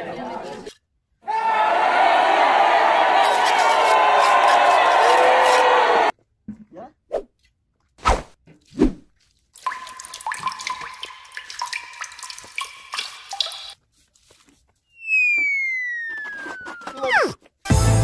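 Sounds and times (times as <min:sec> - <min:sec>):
water running and dripping: 0:09.4 - 0:13.8
descending whistle-like tone: 0:14.9 - 0:17.4.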